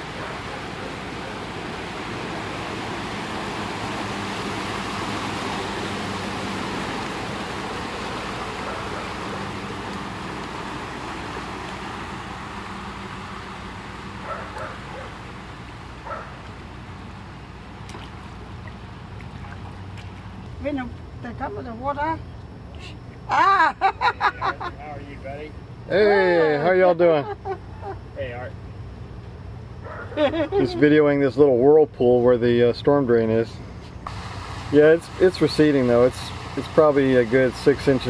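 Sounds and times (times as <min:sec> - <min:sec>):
water rushing into storm drain: 0:00.0 - 0:20.6, 0:34.0 - 0:38.0.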